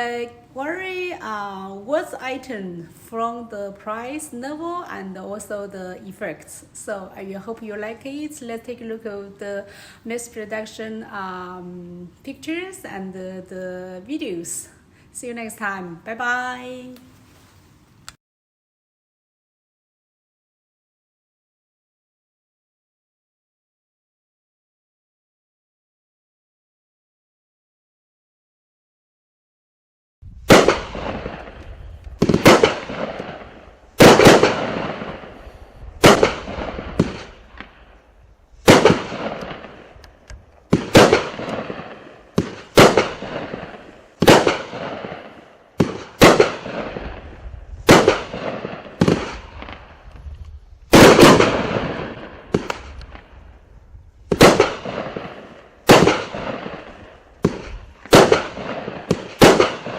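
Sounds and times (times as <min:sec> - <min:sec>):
fireworks cake bangs: 0:32.2 - 0:33.4, 0:34.0 - 0:35.3, 0:38.6 - 0:39.8, 0:40.7 - 0:47.2, 0:47.8 - 0:49.9, 0:50.9 - 0:53.2.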